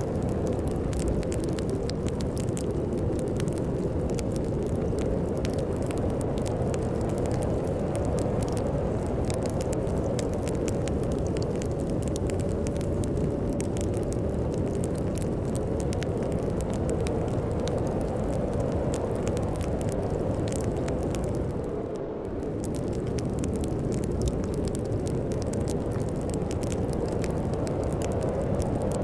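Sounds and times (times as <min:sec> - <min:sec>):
storm wind rumbling: 0:00.0 - 0:29.0
wood fire crackling: 0:00.0 - 0:29.0.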